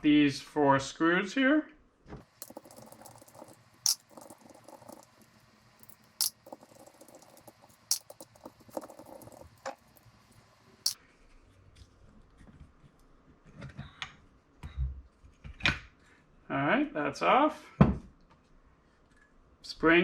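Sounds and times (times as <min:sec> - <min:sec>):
small metal parts scraping: 0:02.3 - 0:09.9.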